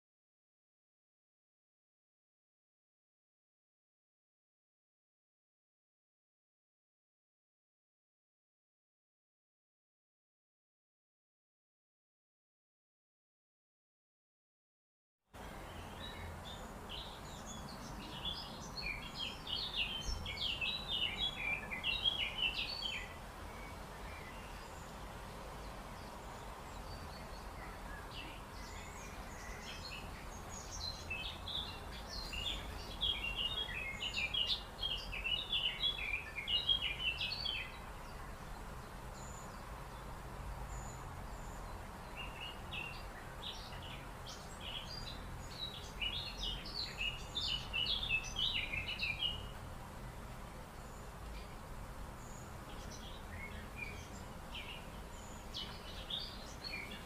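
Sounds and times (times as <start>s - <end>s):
background hiss: 15.4s - 57.0s
birds chirping: 15.4s - 57.0s.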